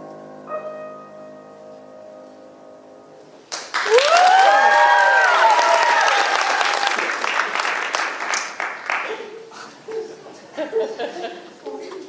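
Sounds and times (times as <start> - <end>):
piano note: 0.0 - 3.5
audience applause: 3.5 - 9.5
audience cheering and whooping: 3.7 - 7.6.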